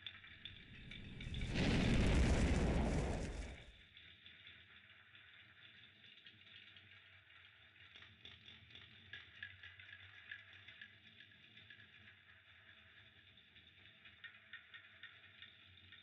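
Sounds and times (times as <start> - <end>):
fire crackling: 0.3 - 3.7.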